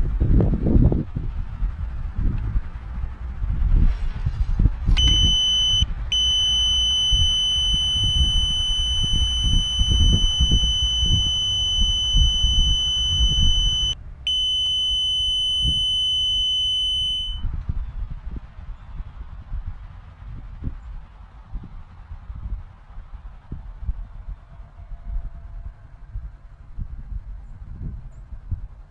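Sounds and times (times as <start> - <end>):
high-pitched buzzer tone: 5.0 - 17.4.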